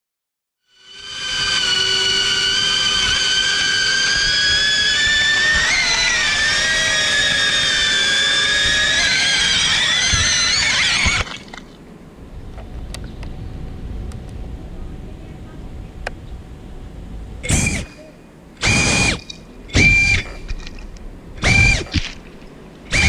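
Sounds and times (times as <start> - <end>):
quadcopter motors whining: 0.7 - 11.4, 17.4 - 20.5, 21.4 - 22.2.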